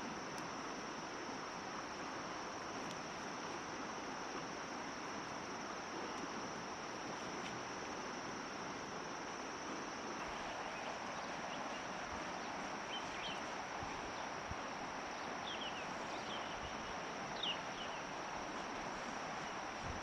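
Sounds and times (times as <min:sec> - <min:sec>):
insect drone: 0:00.0 - 0:20.0
steady rushing hiss: 0:00.0 - 0:20.0.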